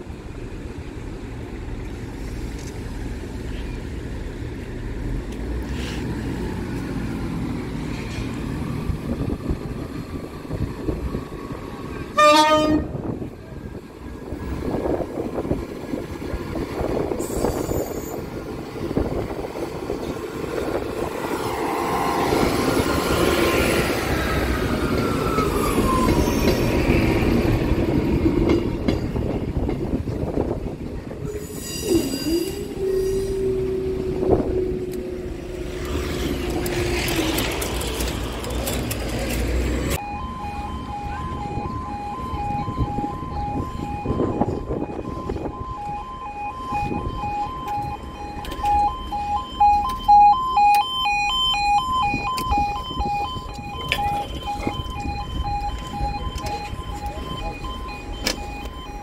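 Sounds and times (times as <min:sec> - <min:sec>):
train wheels rumbling on rails: 0:00.0 - 0:40.0
wheels squealing: 0:24.0 - 0:27.0, 0:31.2 - 0:39.9
pulsing two-tone crossing alarm: 0:40.0 - 0:59.0.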